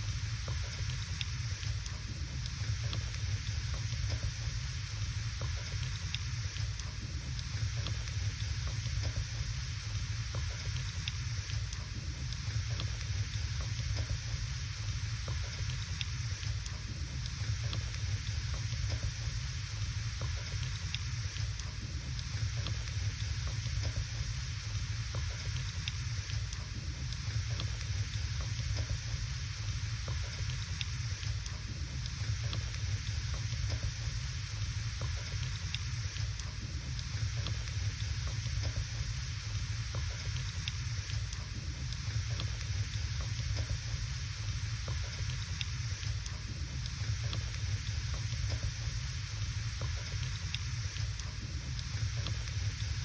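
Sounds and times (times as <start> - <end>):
wood fire burning: 0.1 - 53.0.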